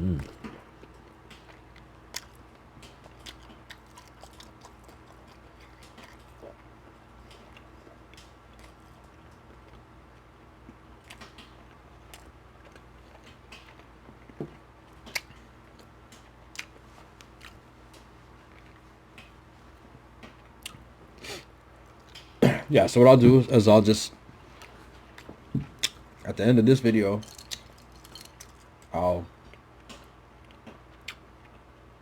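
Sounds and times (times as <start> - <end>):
faint steady low hum: 0.0 - 32.0
person chewing food: 0.1 - 19.3, 27.2 - 28.8.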